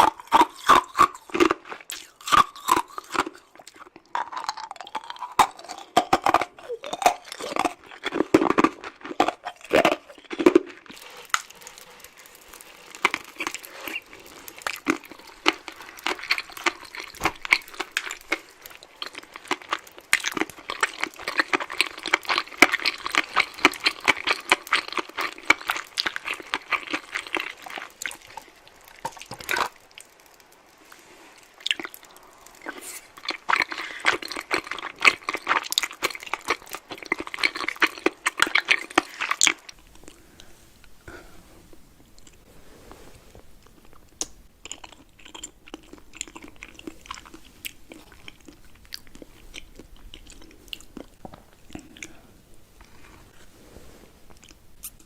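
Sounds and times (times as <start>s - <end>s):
chewing with crunches: 0.0s - 40.5s, 43.3s - 53.6s.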